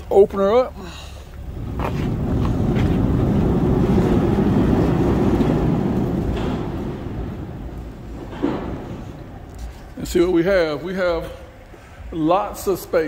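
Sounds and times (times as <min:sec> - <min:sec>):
hangar door rumbling on track: 0:01.4 - 0:11.3.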